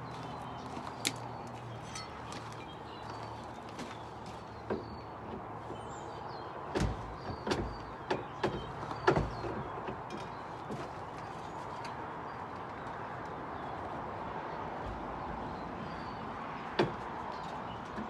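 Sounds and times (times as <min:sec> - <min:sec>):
wooden knocks and clatters: 0:00.7 - 0:05.6, 0:06.7 - 0:12.0.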